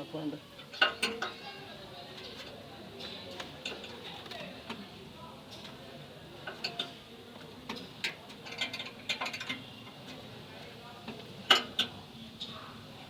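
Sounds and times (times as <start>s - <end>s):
metal tools clicking and knocking: 0.6s - 1.4s, 7.7s - 9.7s, 11.5s - 12.0s.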